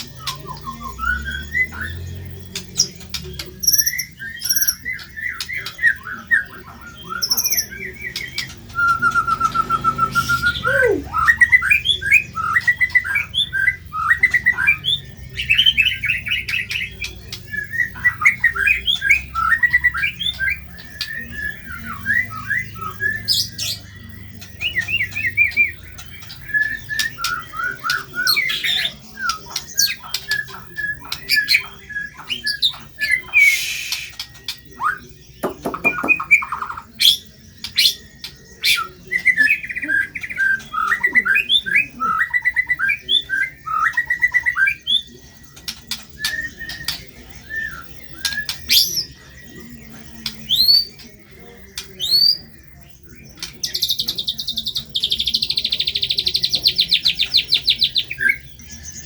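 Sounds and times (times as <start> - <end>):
bird singing whistled notes: 0.0 - 59.0
harsh scratchy bird call: 8.2 - 13.2, 33.0 - 34.4.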